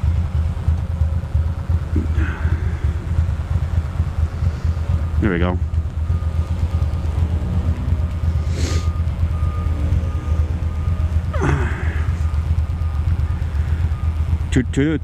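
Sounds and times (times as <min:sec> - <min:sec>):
motorcycle engine rumbling: 0:00.0 - 0:15.0
reversing beeper beeping: 0:00.0 - 0:15.0
short hiss: 0:08.4 - 0:08.9.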